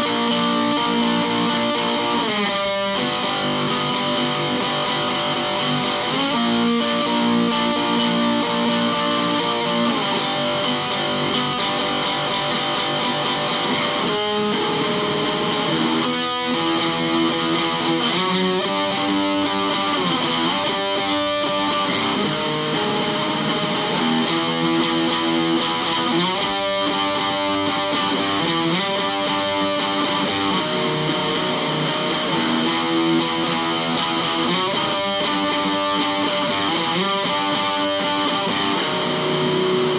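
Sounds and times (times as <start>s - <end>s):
distorted electric guitar chords: 0.0s - 39.9s.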